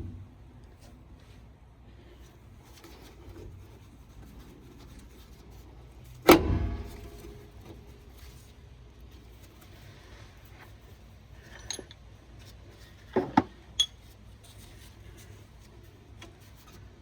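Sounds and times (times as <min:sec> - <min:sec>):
handling of tools and parts: 0:02.6 - 0:17.0
sharp metal clank: 0:06.3 - 0:07.5.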